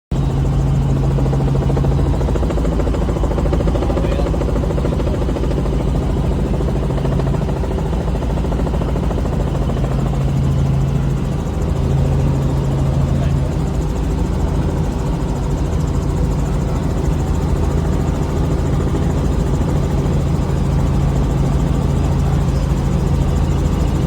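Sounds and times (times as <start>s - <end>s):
helicopter rotor and engine drone: 0.1s - 24.0s.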